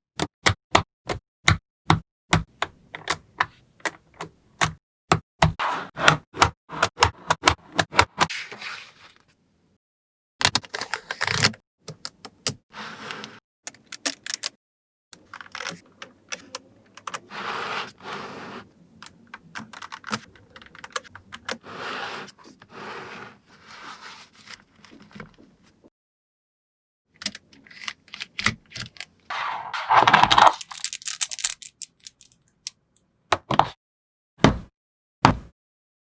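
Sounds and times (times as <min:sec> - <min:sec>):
balls rattling and scraping: 0:29.5 - 0:32.6
magnetic balls clicking together: 0:30.6 - 0:32.4.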